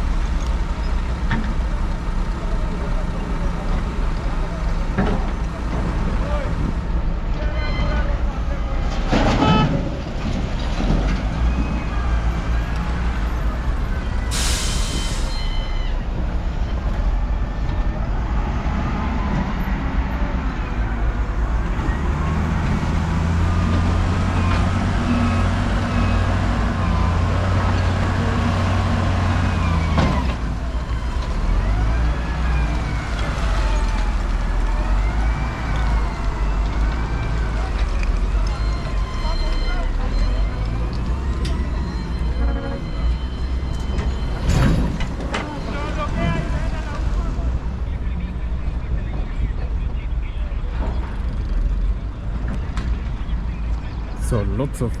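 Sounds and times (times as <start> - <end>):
heavy road traffic: 0.0 - 55.0
air brake hiss: 14.3 - 15.6.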